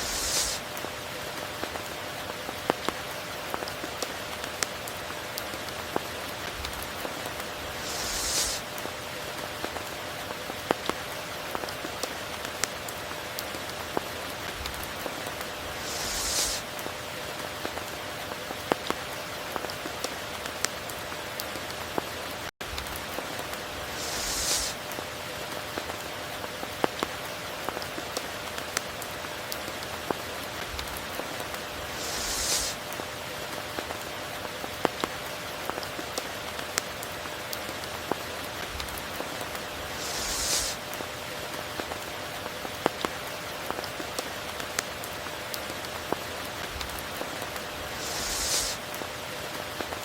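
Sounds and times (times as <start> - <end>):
steady rain: 0.0 - 50.0.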